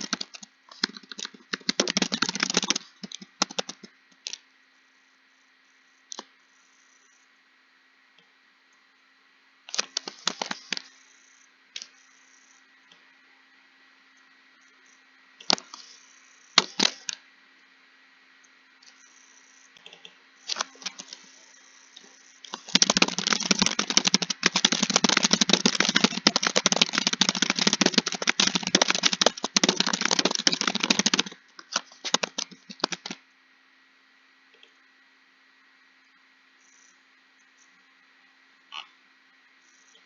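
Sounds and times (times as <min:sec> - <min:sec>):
computer keyboard typing: 0:00.0 - 0:03.9, 0:22.5 - 0:33.2.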